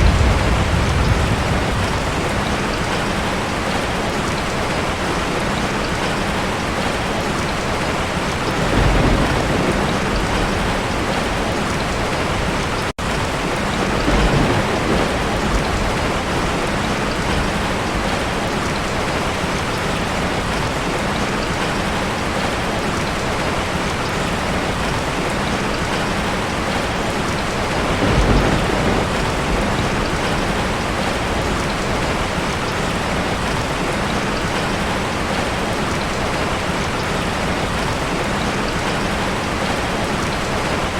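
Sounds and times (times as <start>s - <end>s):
low thunder rumbles: 0.0s - 4.9s, 8.1s - 20.6s, 24.8s - 35.3s
heavy rain: 0.0s - 40.9s.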